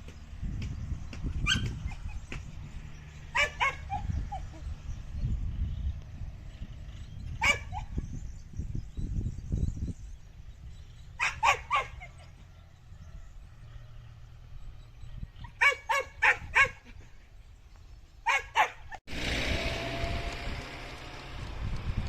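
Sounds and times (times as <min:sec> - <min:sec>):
wind on microphone: 0:00.0 - 0:12.0, 0:19.2 - 0:22.0
dog barking: 0:03.3 - 0:04.4, 0:07.4 - 0:08.0, 0:11.2 - 0:12.3, 0:15.4 - 0:16.8, 0:18.2 - 0:19.0.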